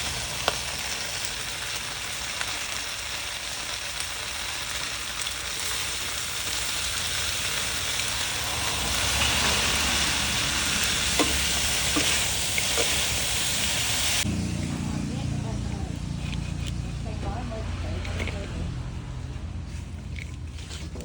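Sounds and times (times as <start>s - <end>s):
chicken frying sizzle: 0.0s - 15.4s
utensil clicking on pan: 11.1s - 13.2s.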